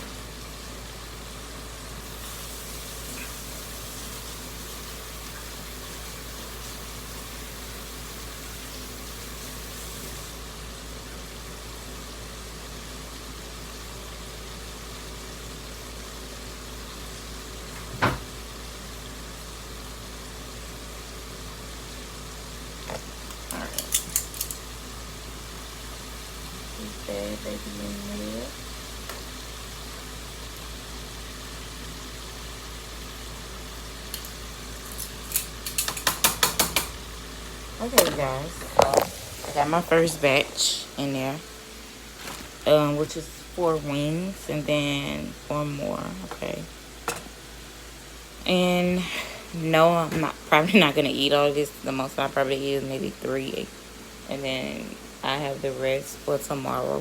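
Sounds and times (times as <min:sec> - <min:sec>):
chicken wings sizzling in grease: 0:00.0 - 0:57.0
utensil knocking on pot: 0:35.8 - 0:37.0.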